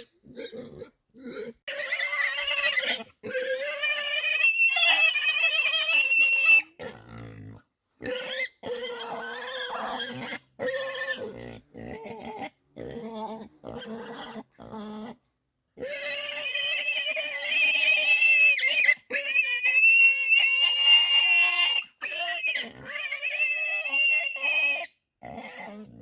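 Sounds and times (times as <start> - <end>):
animal squealing: 1.3 - 6.7.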